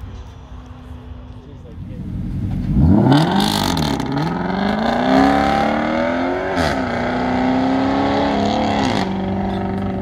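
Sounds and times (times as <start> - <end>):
car engine accelerating hard: 2.0 - 10.0.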